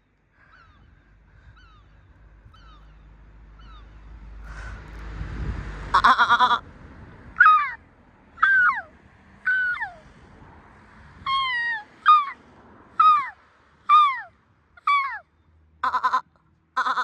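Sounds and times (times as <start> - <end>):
seagulls calling: 0.0 - 4.9, 6.0 - 6.6, 7.4 - 7.8, 8.4 - 8.9, 9.5 - 10.0, 11.3 - 12.4, 13.0 - 16.2, 16.8 - 17.0.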